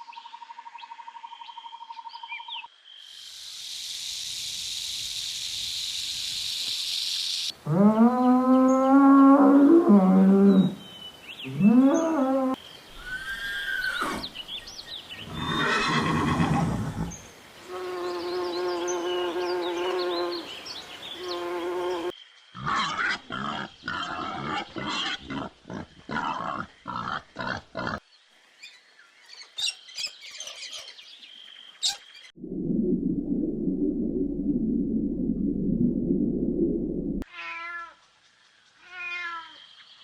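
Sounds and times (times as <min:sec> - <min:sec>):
long steady animal call: 0:15.2 - 0:28.0.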